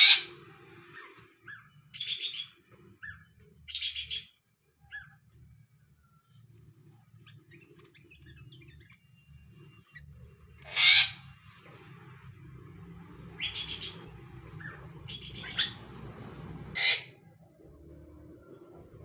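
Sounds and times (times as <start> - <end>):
birds calling harshly: 0.0 - 5.2, 10.6 - 11.4, 13.3 - 15.9, 16.7 - 17.2.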